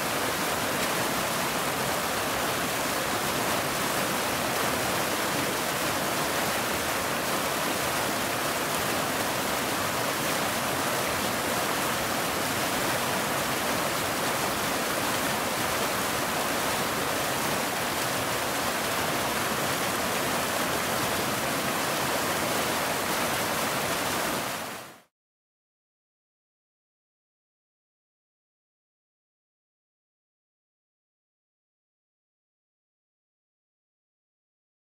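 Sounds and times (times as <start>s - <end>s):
waterfall rushing: 0.0s - 25.1s.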